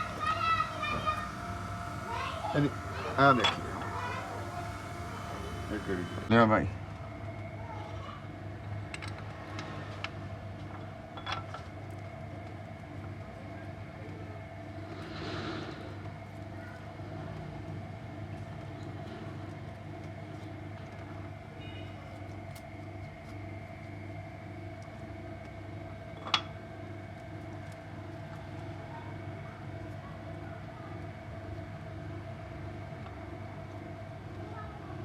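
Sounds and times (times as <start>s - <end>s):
mechanical hum with soft pulsing: 0.0s - 35.0s.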